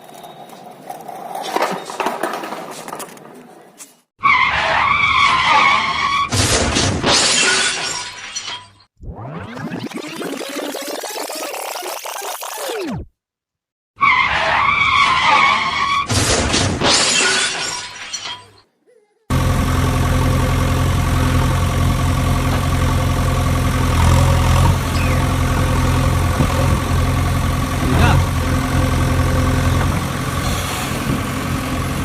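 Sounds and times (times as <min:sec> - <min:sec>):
crash with shattering: 0:05.4 - 0:08.9, 0:16.1 - 0:18.6
truck engine idling: 0:19.3 - 0:32.0.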